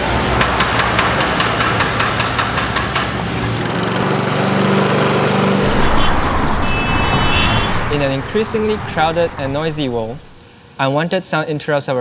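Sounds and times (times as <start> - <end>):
small engine knocking rhythmically: 1.5 - 10.4
steady machine hum: 1.8 - 10.4.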